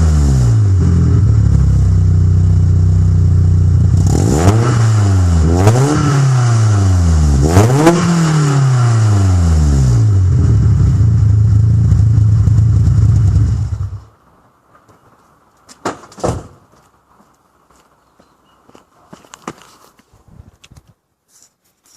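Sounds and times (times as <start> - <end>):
car engine revving and idling: 0.0 - 14.1.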